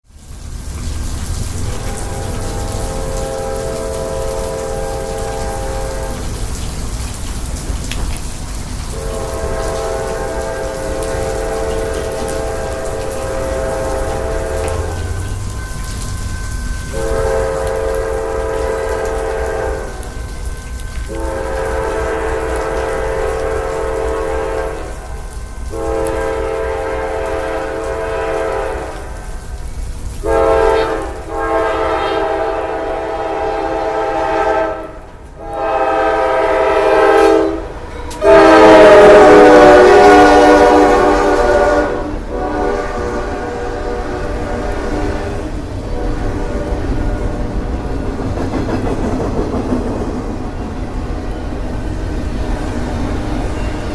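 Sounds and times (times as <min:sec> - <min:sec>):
locomotive air horn blasts: 0:01.6 - 0:06.4, 0:08.9 - 0:29.3, 0:30.2 - 0:47.9.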